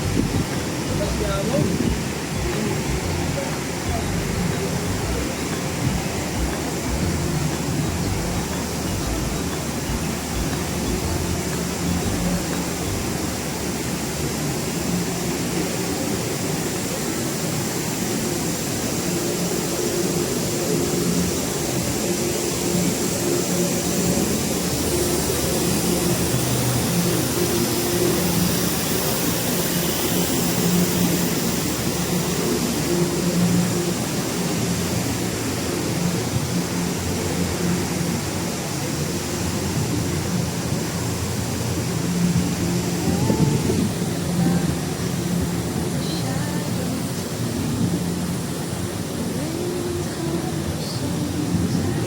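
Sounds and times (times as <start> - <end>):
heavy highway traffic: 0.0 - 13.6, 14.3 - 52.0.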